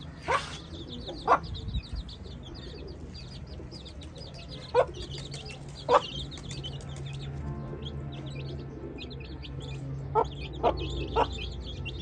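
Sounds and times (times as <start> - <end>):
chicks peeping: 0.0 - 12.0
hen clucking: 0.1 - 1.4.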